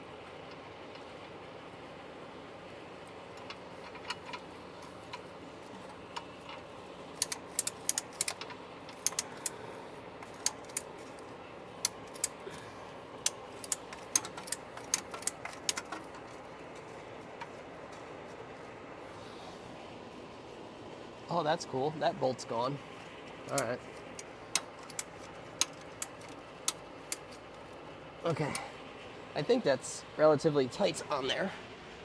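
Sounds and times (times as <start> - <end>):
ratchet clicking: 6.2 - 9.6, 10.2 - 12.4, 13.2 - 16.3, 23.5 - 27.5.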